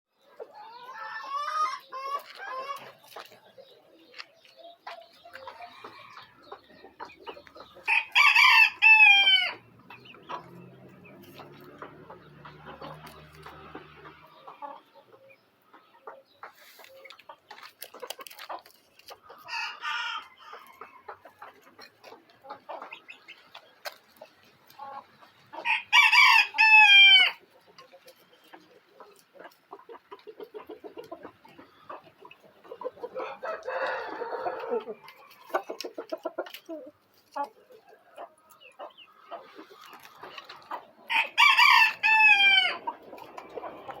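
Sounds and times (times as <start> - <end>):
rooster clucking: 0.3 - 3.5, 4.8 - 44.0
rooster crowing: 7.9 - 9.6, 25.6 - 27.4, 33.2 - 34.8, 41.1 - 42.8.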